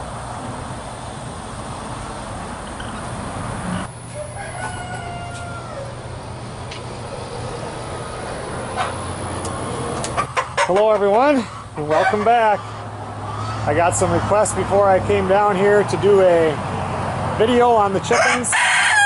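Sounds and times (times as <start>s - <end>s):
steady background hiss: 0.0s - 18.6s
rooster crowing: 3.9s - 6.3s, 18.1s - 19.0s.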